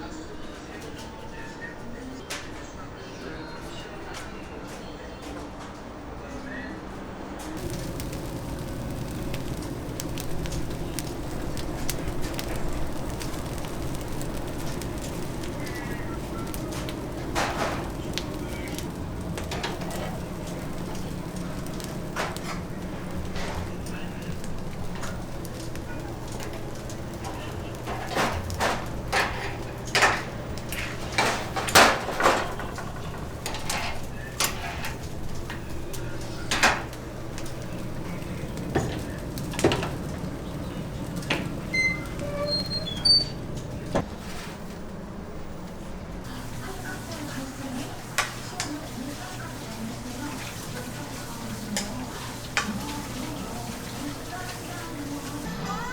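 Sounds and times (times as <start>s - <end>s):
low hum: 7.6s - 26.2s
metal utensils and pans clattering: 7.6s - 44.5s
wood fire crackling and popping: 7.6s - 55.4s.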